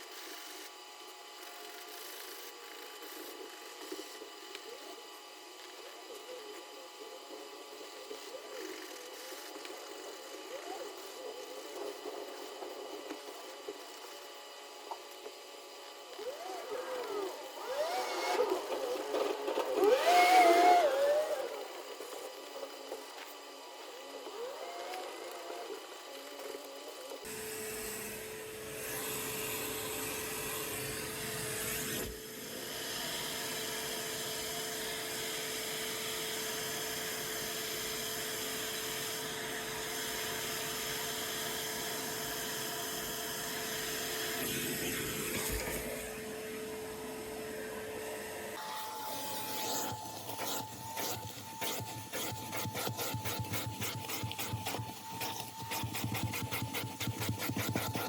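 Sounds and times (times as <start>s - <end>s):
small motor whine: 0.0s - 58.0s
scrubbing and rubbing: 50.2s - 58.0s.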